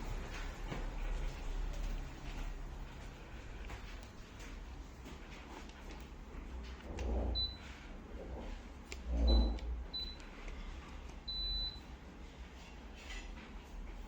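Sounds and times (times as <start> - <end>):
steady low hum: 0.0 - 14.0
air conditioner beeps: 7.2 - 12.7.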